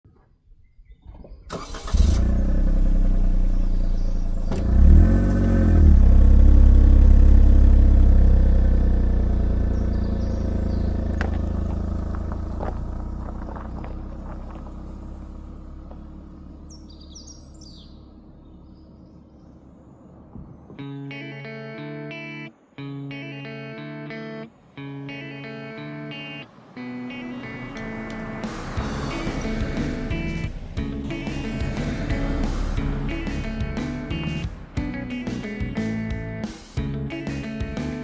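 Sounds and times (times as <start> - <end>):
bird chirps: 0.1 - 1.8, 3.6 - 4.6, 9.6 - 11.6, 16.4 - 23.7
car engine starting and running: 0.8 - 20.8, 24.5 - 38.0.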